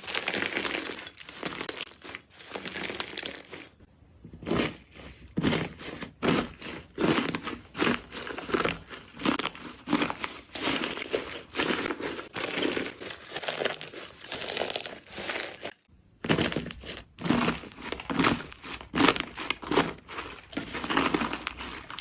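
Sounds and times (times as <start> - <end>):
slime crackling and squishing: 0.0 - 22.0.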